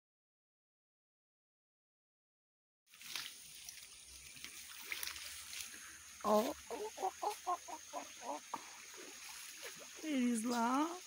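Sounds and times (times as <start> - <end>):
bird clucking calls: 6.3 - 8.8.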